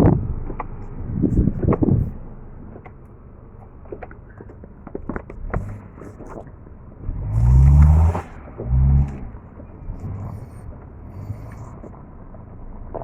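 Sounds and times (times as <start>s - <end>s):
car engine revving: 5.0s - 13.0s.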